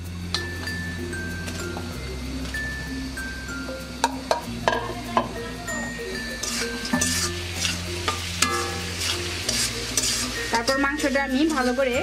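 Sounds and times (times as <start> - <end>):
chicken sizzling in hot oil: 3.1 - 12.0.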